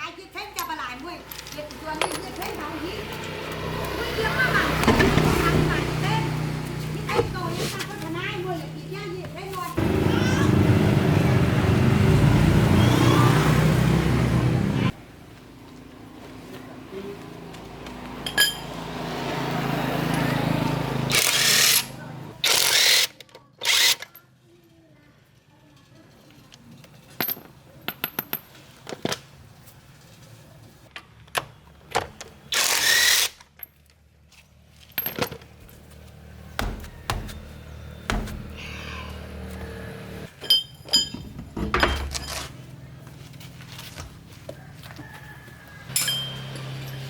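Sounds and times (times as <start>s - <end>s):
metal tools clinking on car parts: 0.5s - 2.9s, 18.2s - 18.8s, 25.8s - 28.7s, 34.8s - 36.0s, 40.3s - 42.6s, 45.9s - 47.0s.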